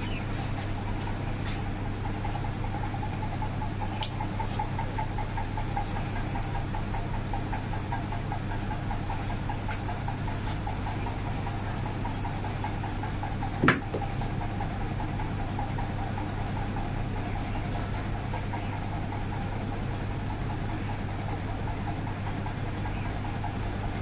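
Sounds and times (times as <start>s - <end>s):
motor humming: 0.0s - 24.0s
sharp knock: 13.6s - 14.0s.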